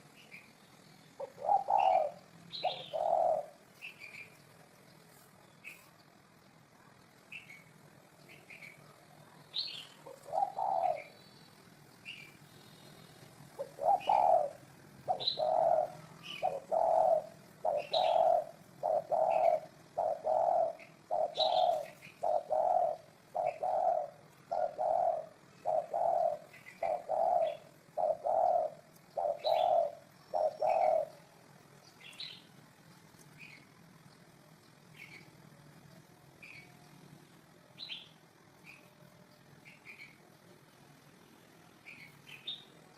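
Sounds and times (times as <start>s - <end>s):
dove cooing: 0.0s - 4.7s, 6.8s - 11.2s, 12.1s - 32.4s
small birds chirping: 0.0s - 42.9s.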